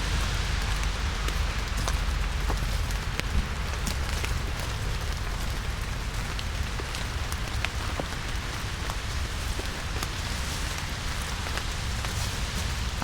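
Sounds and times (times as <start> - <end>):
low rumble: 0.0 - 7.6
rain falling in forest: 0.0 - 13.0
raindrops ticking: 0.0 - 13.0.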